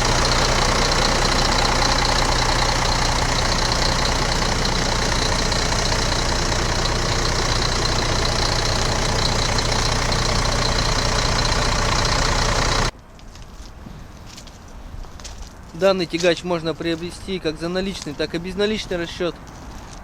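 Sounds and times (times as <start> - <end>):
diesel engine idling: 0.0 - 12.9.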